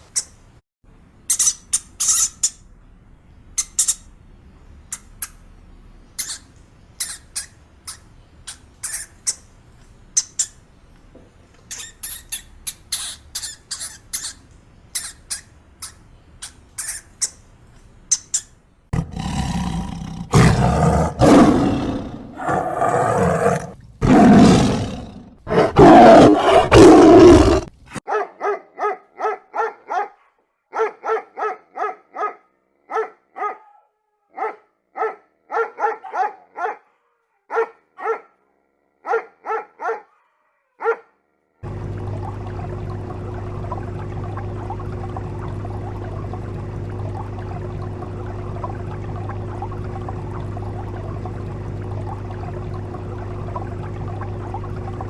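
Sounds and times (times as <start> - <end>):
short high chirps and squeaks: 11.6 - 14.4
big cat roaring and growling: 19.0 - 27.7.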